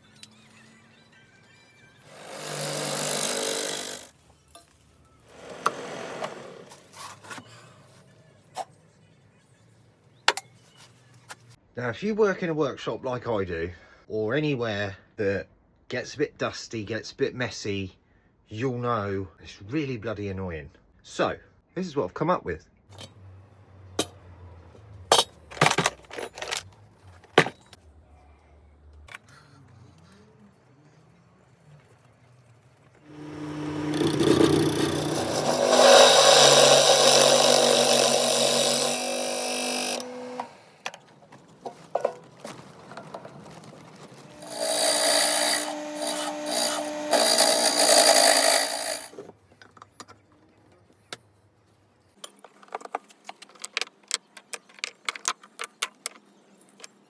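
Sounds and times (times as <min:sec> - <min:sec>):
clicks and knocks of can handling: 0:41.6 - 0:43.8.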